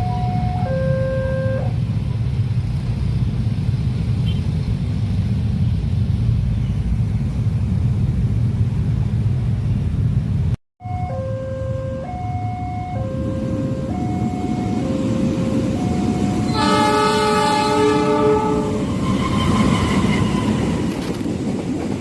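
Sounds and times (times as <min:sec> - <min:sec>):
level crossing warning tones: 0:00.0 - 0:01.7, 0:10.8 - 0:20.6
train rumbling past: 0:11.6 - 0:22.0.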